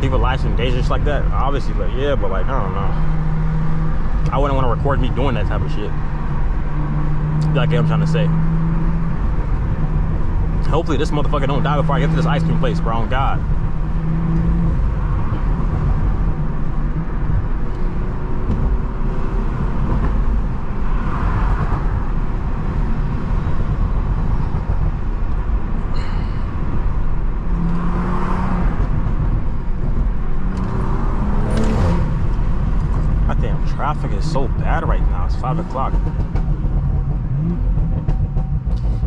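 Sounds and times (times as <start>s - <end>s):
car engine exhaust drone: 0.0s - 39.0s
road rumble: 0.0s - 39.0s.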